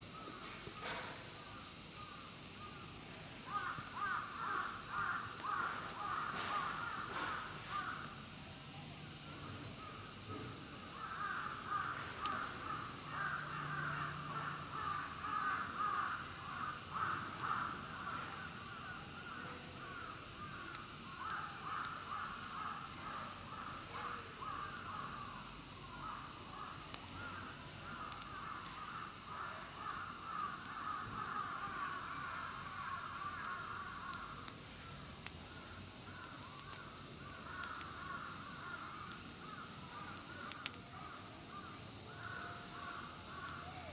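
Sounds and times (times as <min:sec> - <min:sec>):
insects chirring: 0:00.0 - 0:43.9.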